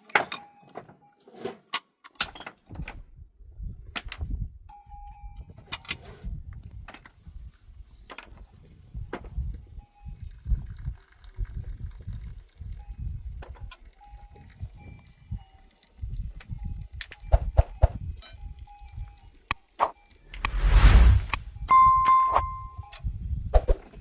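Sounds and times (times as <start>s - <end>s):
low uneven rumble: 20.3s - 21.6s.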